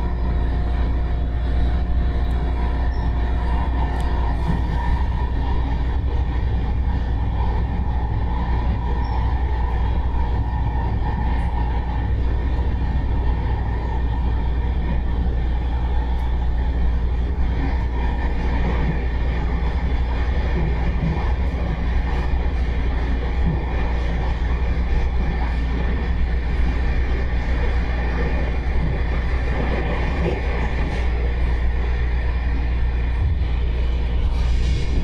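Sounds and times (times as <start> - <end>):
faint steady whine: 0.0 - 35.0
train low rumble: 0.0 - 35.0.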